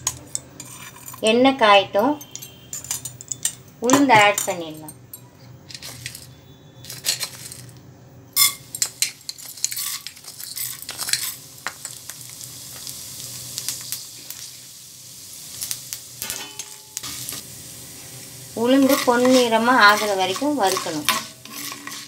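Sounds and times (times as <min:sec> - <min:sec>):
lentils sizzling in hot oil: 0:08.4 - 0:22.0.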